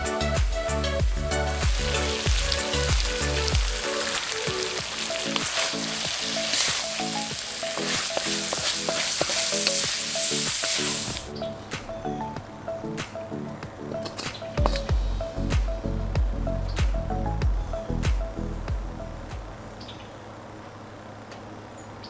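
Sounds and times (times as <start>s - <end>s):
background music: 0.0s - 19.7s
food sizzling in a wok: 1.1s - 11.3s.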